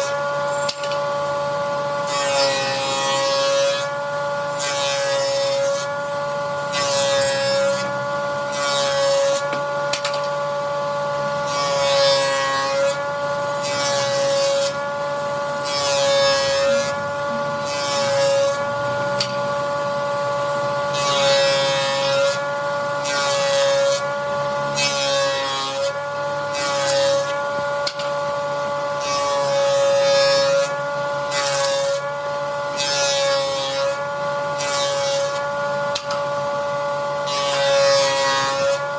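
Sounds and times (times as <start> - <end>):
power tool motor whine: 0.0 - 38.9
rasping cut into wood: 13.6 - 19.6.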